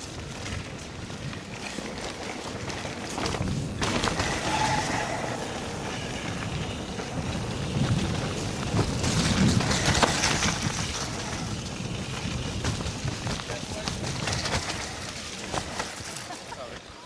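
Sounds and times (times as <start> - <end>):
bike tyres rolling through mud: 0.0 - 17.0
bike knocking: 0.2 - 16.7
wind on microphone: 2.2 - 15.8.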